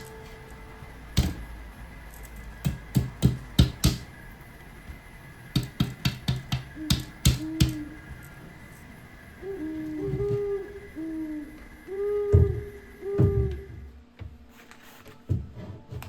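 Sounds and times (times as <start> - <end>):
sharp taps and knocks: 2.6 - 4.2, 5.5 - 7.8.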